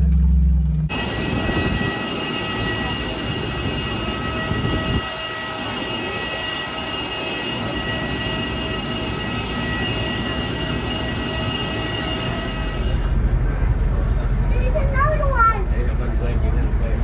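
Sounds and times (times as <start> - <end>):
heavy low rumble: 0.0 - 5.3, 12.4 - 17.0
high steady whining tones: 0.0 - 17.0.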